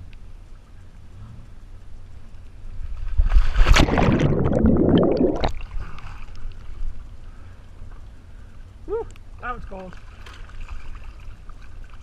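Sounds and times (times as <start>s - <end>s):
water splashing and bubbling: 2.9s - 6.9s, 9.4s - 12.0s.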